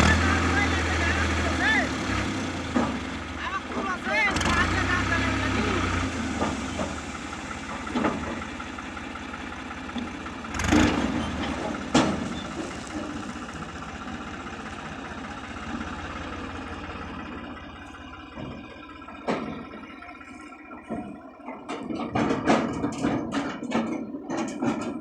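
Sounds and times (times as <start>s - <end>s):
diesel engine running: 0.0s - 25.0s
sharp metallic knocks: 20.8s - 25.0s.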